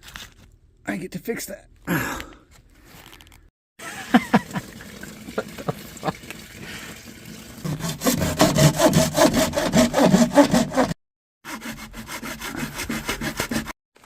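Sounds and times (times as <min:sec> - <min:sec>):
hand saw cutting pipe: 0:07.6 - 0:13.8.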